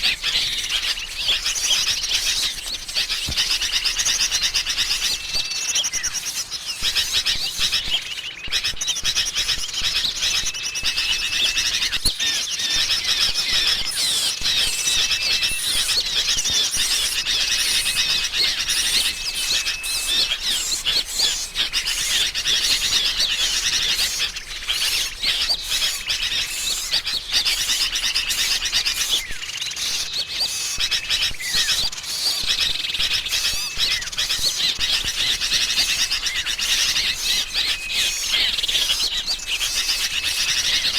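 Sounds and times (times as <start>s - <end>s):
flock of birds chattering: 0.0s - 40.9s
small songbirds chirping: 0.0s - 40.9s.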